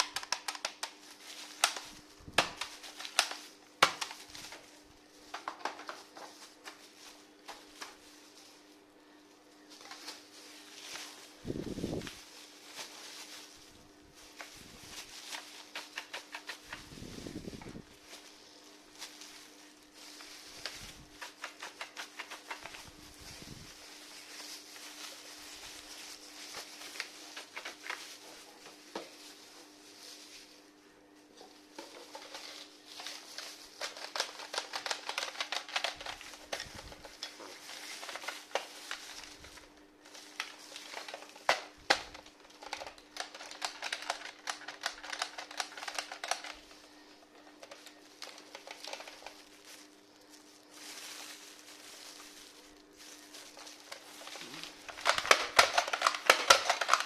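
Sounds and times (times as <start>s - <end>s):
faint steady hum: 0.0s - 57.0s
rustling: 0.0s - 57.0s
small hard objects clicking and rattling: 31.8s - 39.6s, 40.2s - 46.7s, 50.8s - 57.0s.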